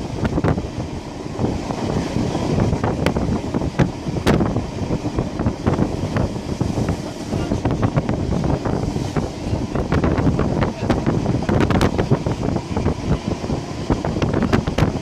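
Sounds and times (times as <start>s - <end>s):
train running rumble: 0.0s - 15.0s
wind buffeting microphone: 0.0s - 15.0s.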